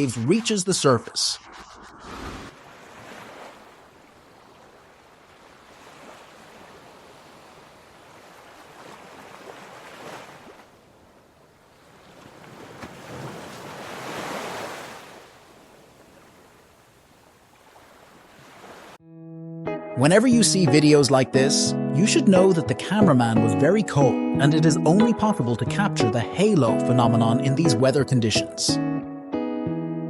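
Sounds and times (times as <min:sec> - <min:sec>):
air rushing out of cave vent: 0:01.2 - 0:02.8.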